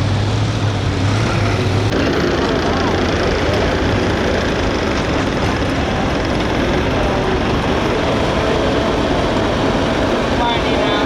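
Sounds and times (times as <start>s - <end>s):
tractor engine: 0.0s - 11.0s.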